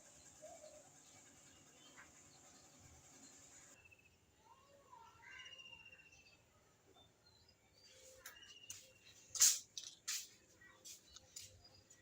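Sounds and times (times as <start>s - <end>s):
short hissing noises: 9.3s - 11.1s.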